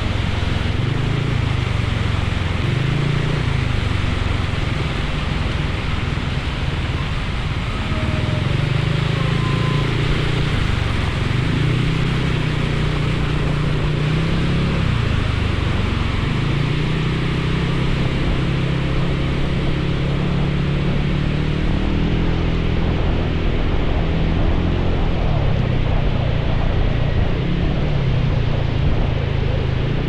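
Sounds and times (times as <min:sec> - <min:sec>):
motorcycle engine running: 0:00.0 - 0:30.0
wind and rain noise: 0:00.0 - 0:30.0.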